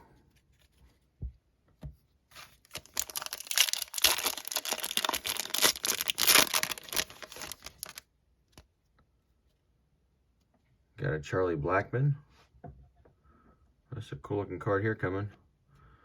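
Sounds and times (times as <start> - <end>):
foil wrapper tearing and crinkling: 2.4 - 8.0.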